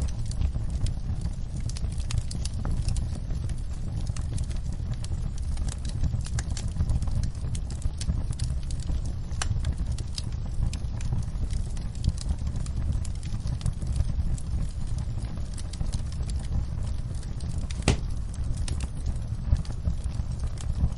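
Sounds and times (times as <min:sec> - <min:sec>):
fireplace fire crackling: 0:00.0 - 0:20.9
low rumble of flames: 0:00.0 - 0:20.9.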